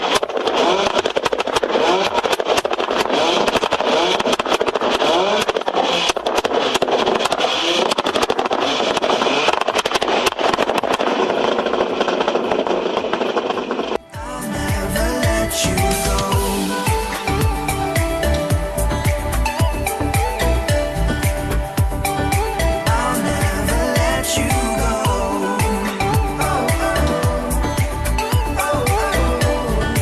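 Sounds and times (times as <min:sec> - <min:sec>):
car engine revving roughly: 0:00.0 - 0:18.3.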